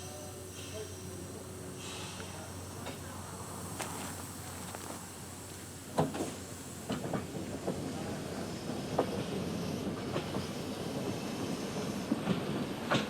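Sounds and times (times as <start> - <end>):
rail car wheel clicks: 12.1 - 13.0.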